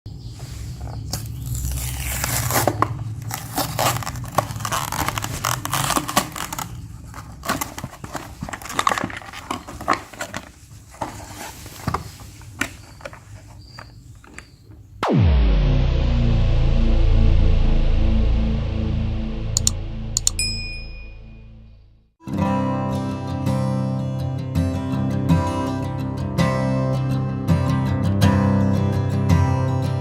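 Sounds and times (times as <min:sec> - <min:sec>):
crinkling and rustling: 0:00.4 - 0:15.0
low hum: 0:15.0 - 0:22.1
sharp clicks: 0:19.6 - 0:20.4.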